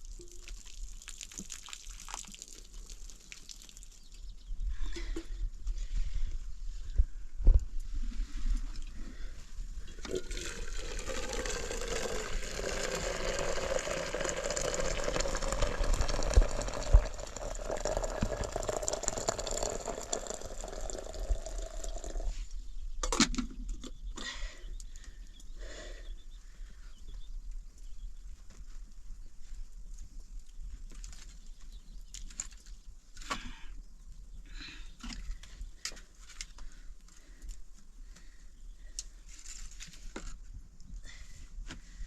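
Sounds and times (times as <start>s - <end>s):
liquid pouring into container: 0.0s - 4.1s, 10.0s - 22.4s.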